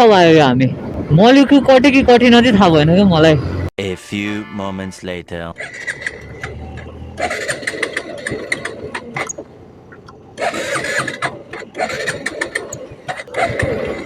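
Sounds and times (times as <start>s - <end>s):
motorcycle electric starter cranking: 5.6s - 14.0s.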